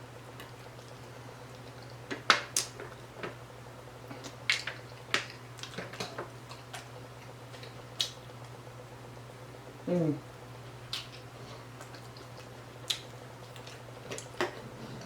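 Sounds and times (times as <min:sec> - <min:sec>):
chewing and lip smacking: 0:10.8 - 0:15.0.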